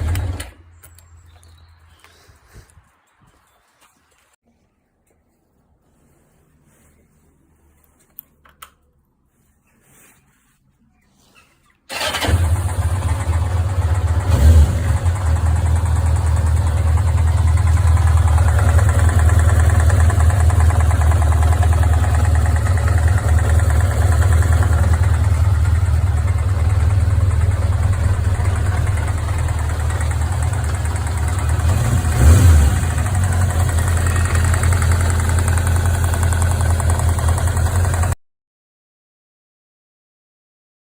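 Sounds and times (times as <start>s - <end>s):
engine revving: 11.9s - 38.1s
petrol engine idling: 11.9s - 38.2s.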